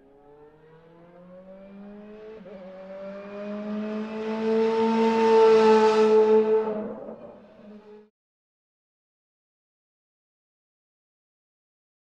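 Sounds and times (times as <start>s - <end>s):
car engine revving: 0.8s - 8.0s.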